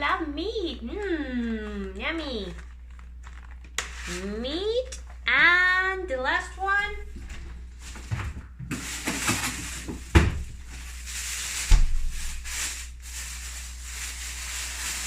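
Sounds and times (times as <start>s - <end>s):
hands rummaging in a fridge: 6.7s - 15.0s
fridge knocks: 7.0s - 10.7s.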